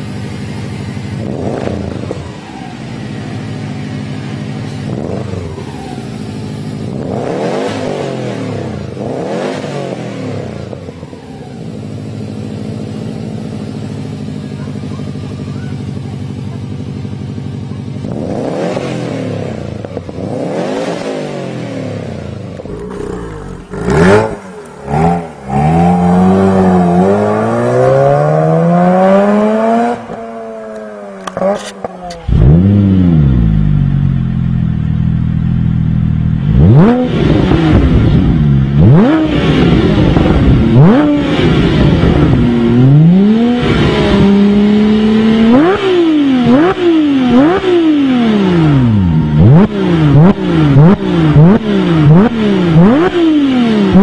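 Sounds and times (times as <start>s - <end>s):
rotary engine revving: 1.2s - 3.4s, 4.1s - 11.4s, 18.0s - 34.4s, 36.3s - 54.0s
flat-six engine revving: 18.0s - 34.2s, 36.4s - 54.0s.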